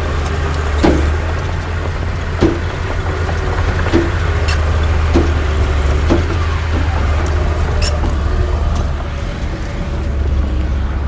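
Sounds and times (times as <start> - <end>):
diesel machinery rumbling: 0.0 - 10.0
metallic clanks and squeaks: 0.8 - 8.2.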